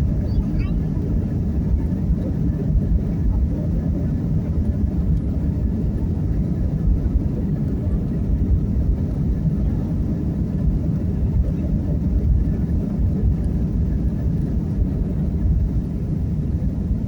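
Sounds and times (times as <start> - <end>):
jet engine rumble: 0.0 - 17.0.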